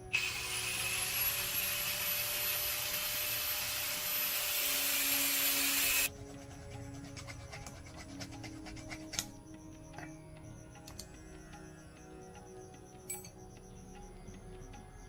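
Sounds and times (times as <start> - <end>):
power tool whining: 0.0 - 6.1
soft background music: 0.0 - 15.0.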